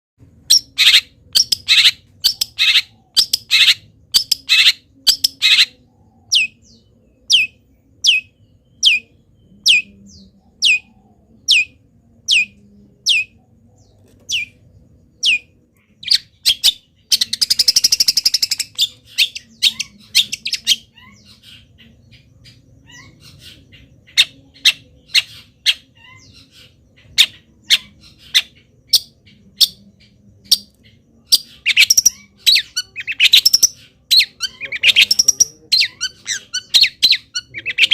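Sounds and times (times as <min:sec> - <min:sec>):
harsh bird squawks: 0:00.5 - 0:06.6, 0:31.3 - 0:37.9.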